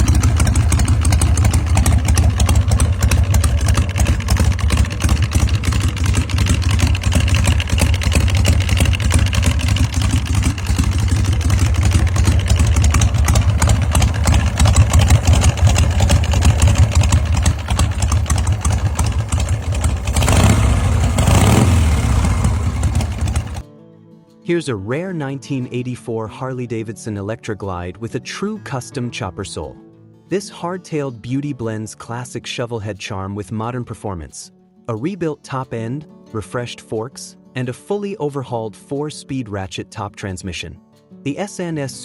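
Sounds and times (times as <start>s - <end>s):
motorcycle engine idling: 0.0s - 23.6s.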